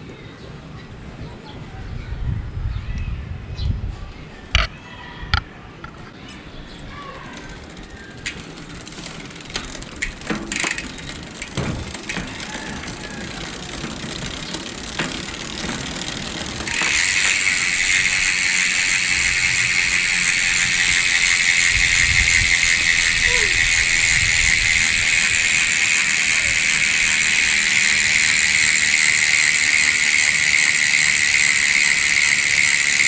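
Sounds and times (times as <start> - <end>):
bicycle freehub ratcheting buzz: 7.0 - 33.0
sharp knocks and clicks: 7.3 - 17.5.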